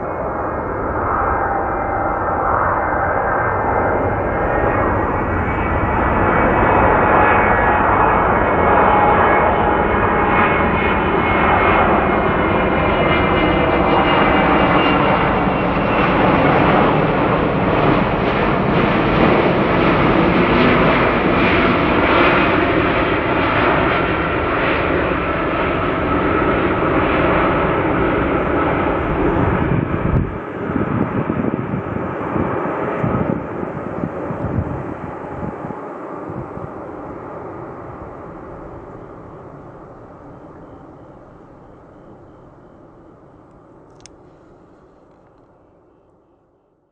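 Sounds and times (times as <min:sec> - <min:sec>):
jet engines running: 0:00.0 - 0:45.9.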